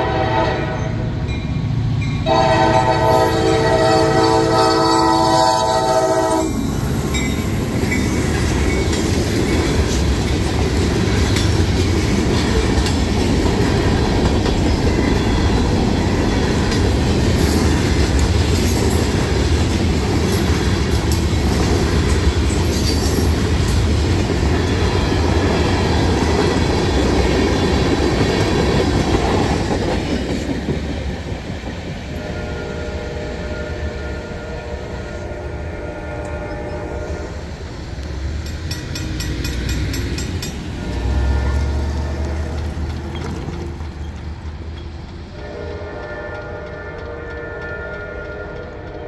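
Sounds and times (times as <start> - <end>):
distant train horn blasts: 0.0 - 1.3, 2.2 - 6.6, 32.0 - 37.7, 40.6 - 42.5, 45.3 - 49.0
crossing bell ringing: 0.0 - 10.6, 14.5 - 16.8
freight train wheels clattering: 1.1 - 32.4, 37.9 - 49.0.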